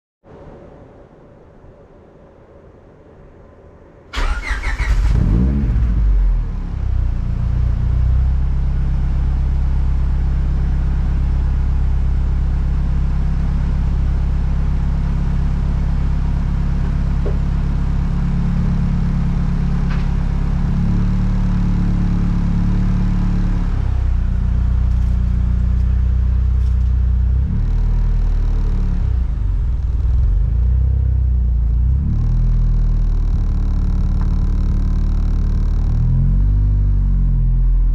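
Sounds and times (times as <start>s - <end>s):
car engine starting and idling: 4.1s - 37.9s.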